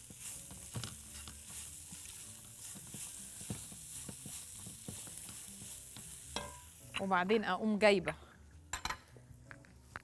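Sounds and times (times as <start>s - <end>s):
food sizzling in a pot: 0.0s - 7.9s
utensil knocking against pot: 6.0s - 6.7s.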